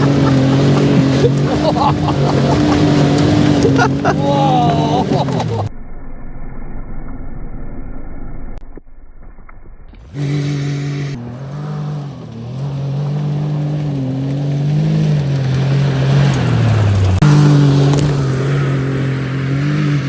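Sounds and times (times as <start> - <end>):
buggy engine running under load: 0.0 - 8.5, 10.0 - 20.0.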